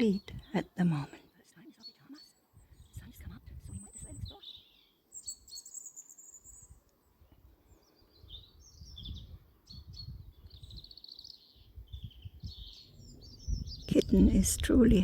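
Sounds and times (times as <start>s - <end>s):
small songbirds chirping: 0.0s - 15.0s.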